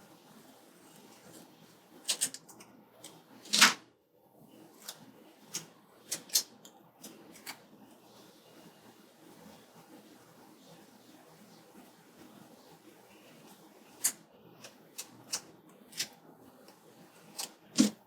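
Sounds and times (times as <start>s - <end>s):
scissors cutting paper: 14.0s - 16.2s, 17.3s - 18.0s.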